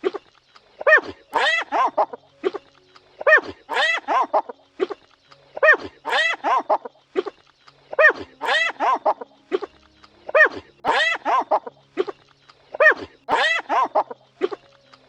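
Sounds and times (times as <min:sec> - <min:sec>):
animal calls rising and falling: 0:03.3 - 0:05.0, 0:05.7 - 0:07.3, 0:08.0 - 0:09.7, 0:10.3 - 0:12.1, 0:12.8 - 0:14.6.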